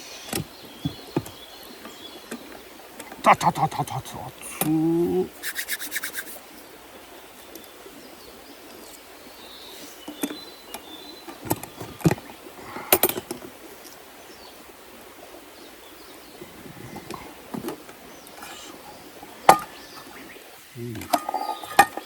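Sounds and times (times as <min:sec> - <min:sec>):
forest background hiss: 0:00.0 - 0:22.0
faint bird chirp: 0:18.0 - 0:22.0.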